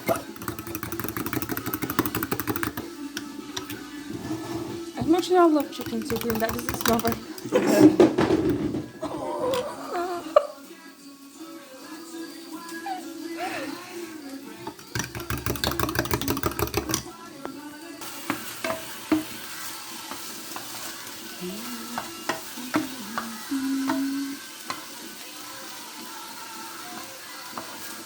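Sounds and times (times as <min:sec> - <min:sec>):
utensil clicking against pan: 0:00.0 - 0:03.9, 0:05.2 - 0:07.6, 0:14.7 - 0:17.1
food sizzling: 0:00.0 - 0:28.0.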